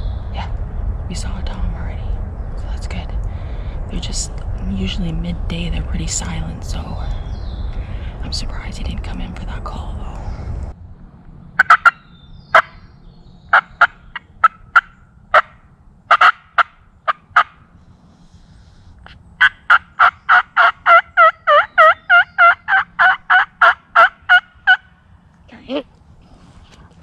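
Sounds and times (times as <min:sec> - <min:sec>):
turkey call clucks: 0:11.6 - 0:12.8, 0:13.5 - 0:17.6, 0:19.4 - 0:25.0
turkey call yelps: 0:11.6 - 0:12.8, 0:13.5 - 0:17.6, 0:19.4 - 0:25.0.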